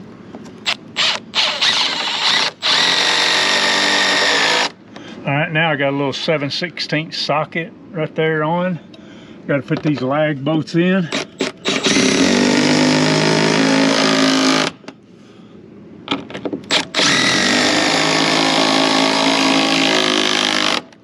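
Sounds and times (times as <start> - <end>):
impact driver driving bolts into wood: 11.1 - 14.8, 16.1 - 21.0.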